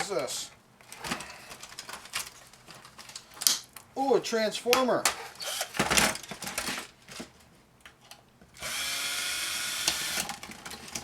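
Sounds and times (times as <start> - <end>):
power drill running: 5.4 - 5.8, 8.6 - 10.3.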